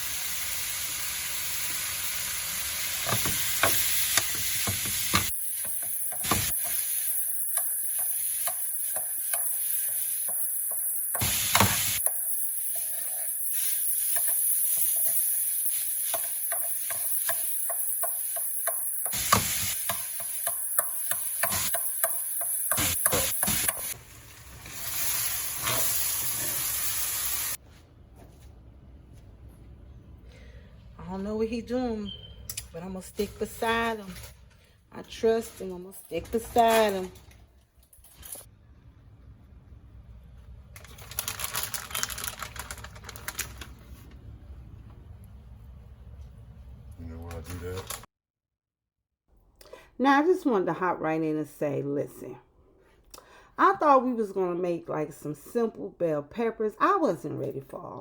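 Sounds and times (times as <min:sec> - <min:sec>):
food sizzling in a frying pan: 0:00.0 - 0:27.6.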